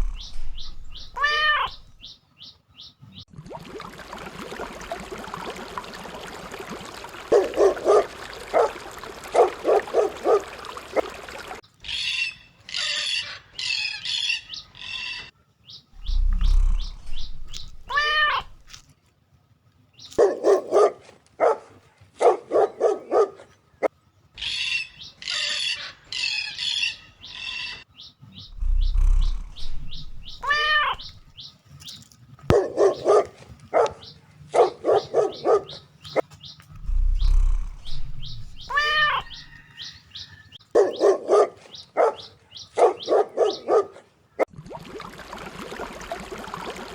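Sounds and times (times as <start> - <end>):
birds chirping and squawking: 0.0 - 3.3, 7.3 - 18.8, 24.3 - 43.9
dog barking: 7.2 - 11.2, 20.2 - 23.6, 32.5 - 36.2, 40.7 - 44.1.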